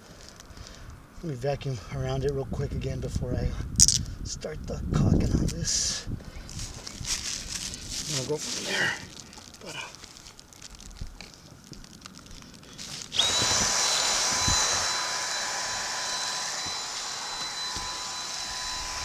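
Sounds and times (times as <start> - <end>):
vacuum cleaner motor whine: 13.0 - 19.0.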